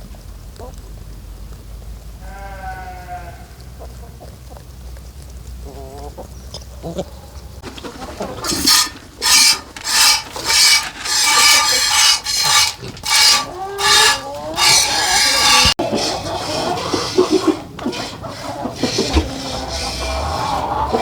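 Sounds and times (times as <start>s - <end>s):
rasping scraping strokes: 7.6s - 21.0s.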